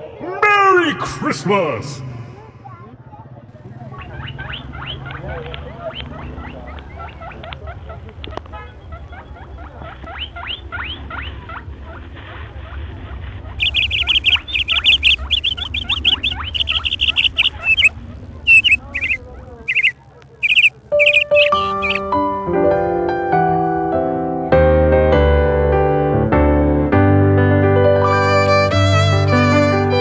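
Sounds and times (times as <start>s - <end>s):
caged birds chirping: 4.0s - 11.4s, 13.6s - 22.5s
piano music: 20.9s - 30.0s.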